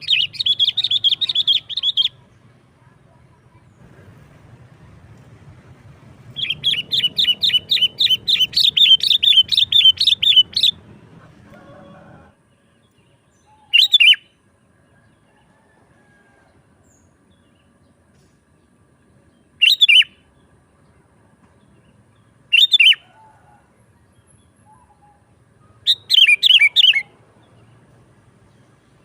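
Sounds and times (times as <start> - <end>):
bulbul singing: 0.0 - 2.4, 6.2 - 11.0, 12.8 - 14.4, 19.3 - 20.5, 21.8 - 23.2, 24.1 - 27.8.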